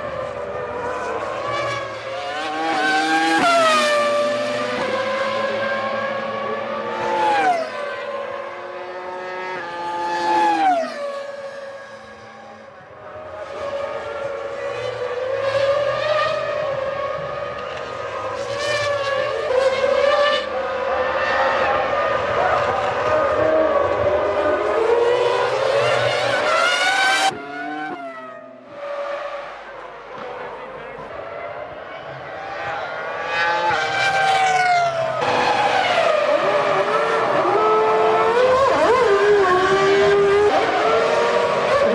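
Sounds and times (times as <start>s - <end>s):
racing car engines: 0.0s - 41.9s.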